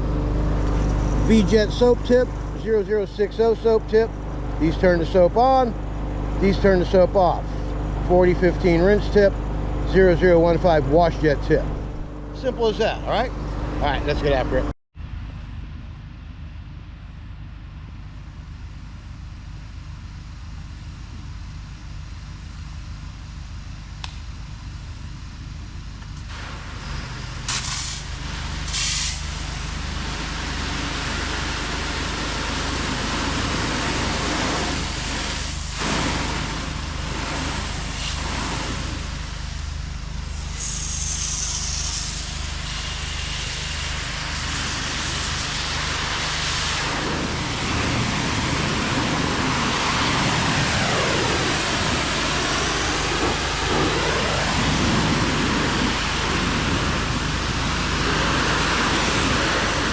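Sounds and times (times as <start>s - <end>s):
pressure washer engine hum: 0.0s - 14.7s, 24.6s - 59.9s
high-pressure water spray hissing: 26.2s - 59.9s.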